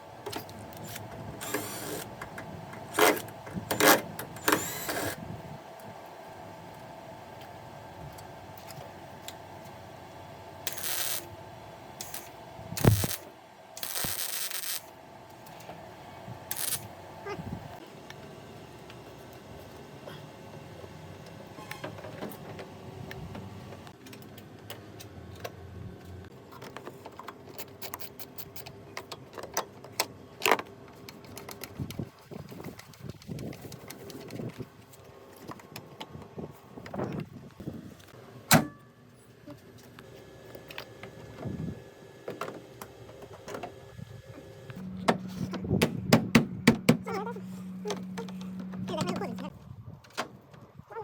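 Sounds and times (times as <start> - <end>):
steady low hum: 42.8 - 50.0.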